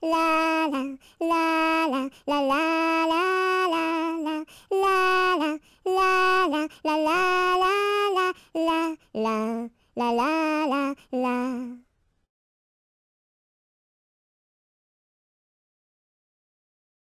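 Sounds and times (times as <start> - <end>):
woman singing a melody: 0.0 - 11.9.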